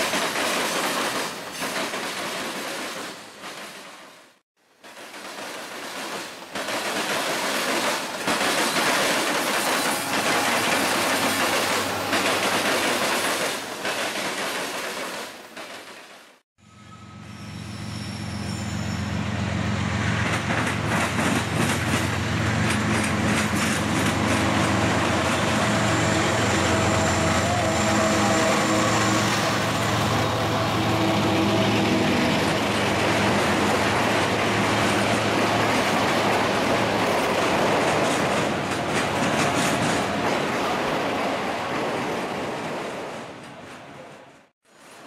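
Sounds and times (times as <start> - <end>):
freight cars rumbling on rails: 5.0 - 16.2, 16.8 - 44.5
diesel locomotive engine drone: 16.6 - 41.6.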